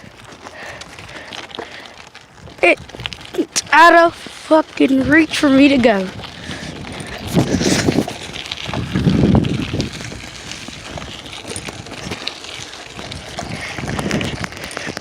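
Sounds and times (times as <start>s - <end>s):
clicks and rustles: 0.0s - 15.0s
wind gusting on microphone: 2.2s - 15.0s.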